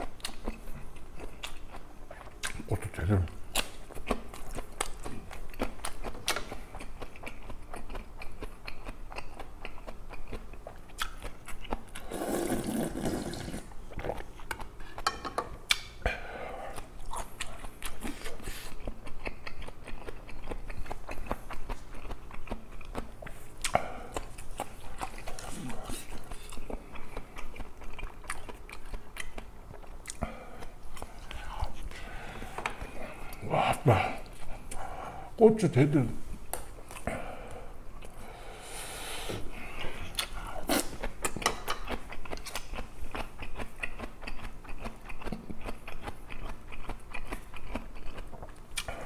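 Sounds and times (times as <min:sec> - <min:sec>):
man chewing with mouth clicks: 0:00.0 - 0:35.3, 0:36.4 - 0:49.0.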